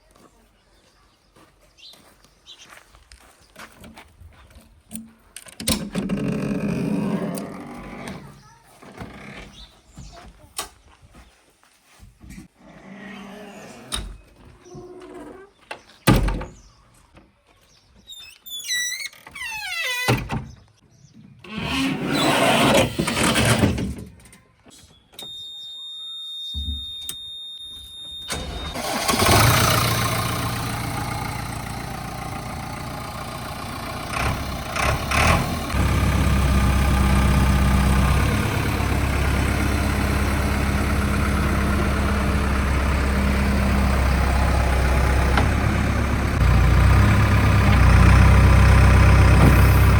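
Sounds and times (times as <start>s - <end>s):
backhoe diesel engine running: 28.3s - 49.9s.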